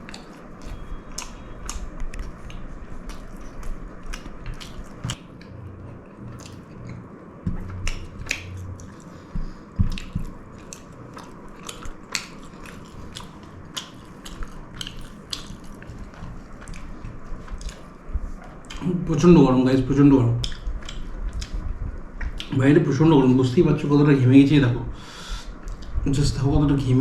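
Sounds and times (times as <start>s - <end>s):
chewing: 0.0s - 18.9s, 20.4s - 22.6s.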